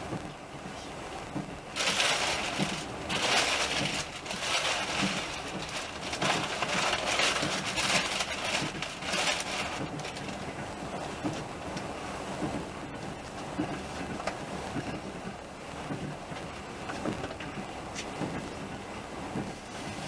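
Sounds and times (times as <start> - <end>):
train rushing and rattling: 0.0 - 20.0
wheels knocking over rail joints: 1.3 - 11.5.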